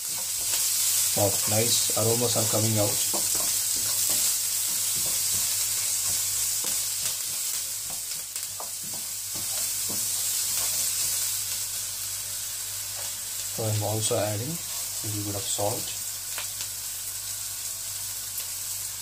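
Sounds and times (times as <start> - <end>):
wooden spatula scraping pan: 0.0 - 11.3
vegetables sizzling in oil: 0.0 - 19.0.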